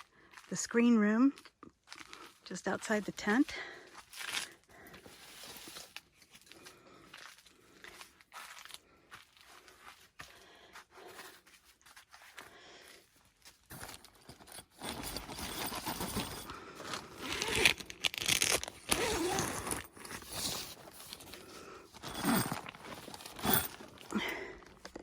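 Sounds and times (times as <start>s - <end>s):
fabric rustling and crinkling: 4.0s - 10.2s, 11.1s - 25.0s
faint handling: 13.4s - 25.0s
tent zipper opening: 14.3s - 24.8s.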